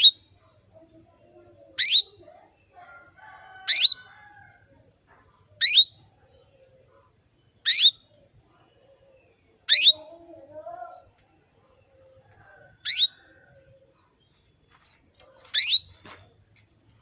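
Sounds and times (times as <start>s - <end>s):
canary upward-sweeping chirp: 1.8s - 2.2s, 3.7s - 4.1s, 9.7s - 10.1s, 12.8s - 13.2s, 15.5s - 15.9s.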